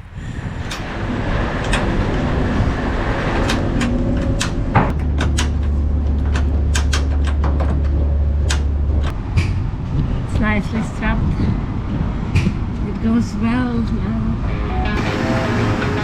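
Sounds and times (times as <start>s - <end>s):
steady low hum: 14.3s - 16.0s.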